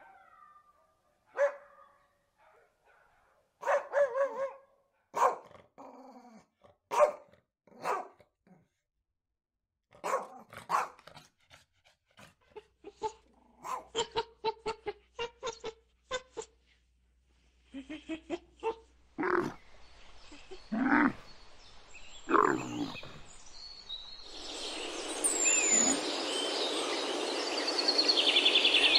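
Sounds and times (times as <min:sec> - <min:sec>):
dogs barking: 0:01.2 - 0:05.6, 0:06.9 - 0:08.2, 0:10.0 - 0:11.3, 0:12.9 - 0:14.3, 0:22.3 - 0:23.3.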